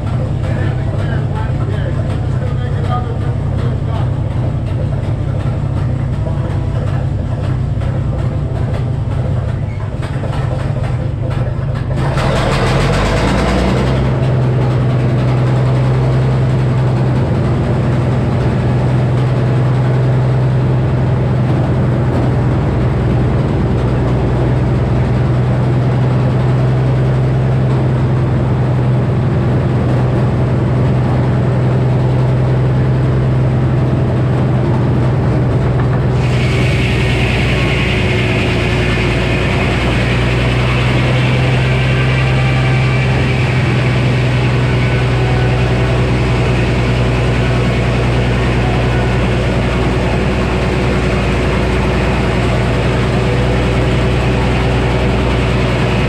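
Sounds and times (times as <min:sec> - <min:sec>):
circular saw low drone: 0:11.9 - 0:56.0
high hissing sound: 0:36.2 - 0:47.3.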